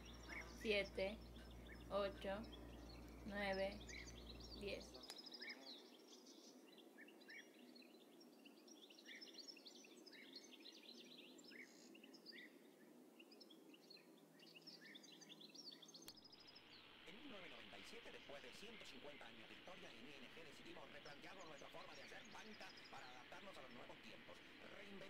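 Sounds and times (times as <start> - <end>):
faint birds chirping: 0.0 - 25.0.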